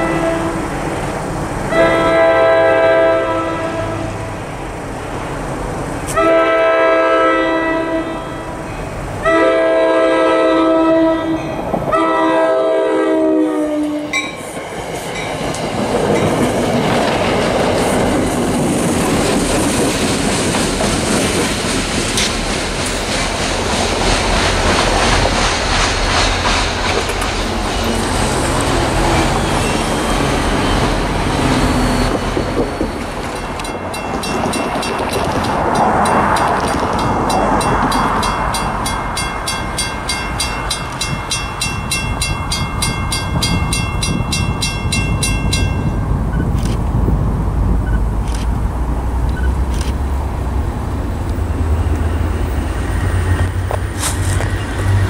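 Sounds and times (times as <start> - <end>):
train air horn blasts: 0.0 - 0.7, 1.7 - 4.4, 6.1 - 8.6, 9.2 - 14.2
train wheels clattering: 14.2 - 45.8.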